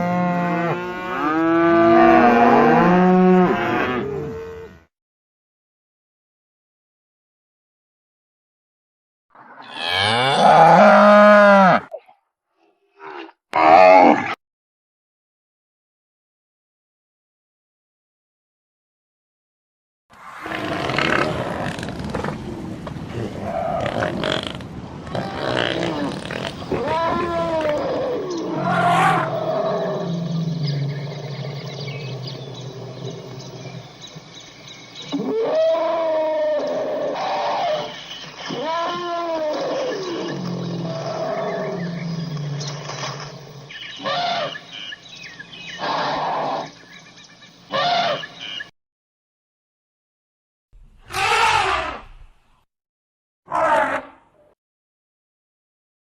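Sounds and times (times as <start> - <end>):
low animal rumble: 20.7 - 33.9
rough animal calls: 23.3 - 33.8, 35.1 - 44.9, 47.7 - 48.6, 51.0 - 52.4
animal calls rising and falling: 25.1 - 30.8, 47.7 - 48.3, 51.0 - 52.3.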